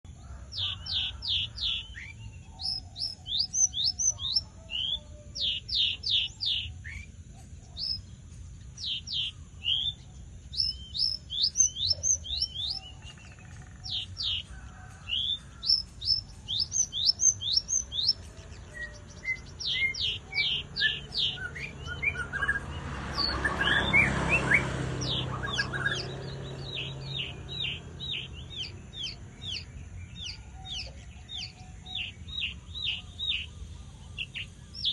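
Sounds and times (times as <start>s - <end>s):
lark singing whistled notes: 0.2s - 34.9s
noisy rumble: 13.8s - 34.9s.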